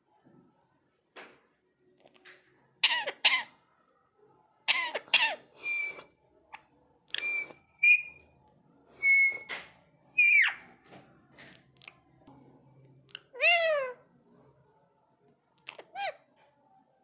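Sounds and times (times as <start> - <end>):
parrot rasping calls: 2.8 - 3.6, 4.7 - 6.0, 13.2 - 14.0
parrot whistled notes: 5.6 - 6.1, 7.2 - 8.2, 9.0 - 9.5.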